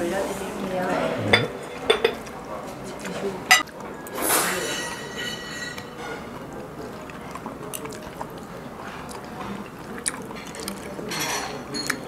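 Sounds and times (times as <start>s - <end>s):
person chewing shellfish: 5.8s - 11.2s.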